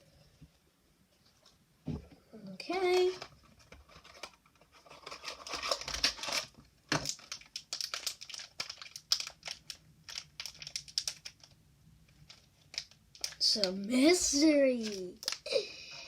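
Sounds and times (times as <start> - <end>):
plastic packaging crinkling: 3.1 - 15.7.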